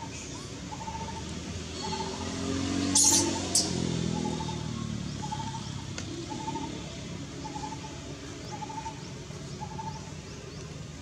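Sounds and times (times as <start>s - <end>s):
high rising bird chirps: 2.9s - 6.8s.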